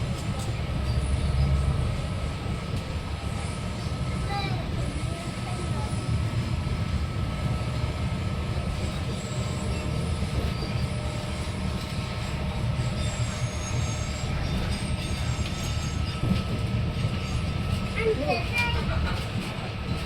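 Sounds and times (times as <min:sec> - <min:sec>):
train rumbling on track: 0:00.0 - 0:20.0
wheels squealing: 0:08.7 - 0:18.9.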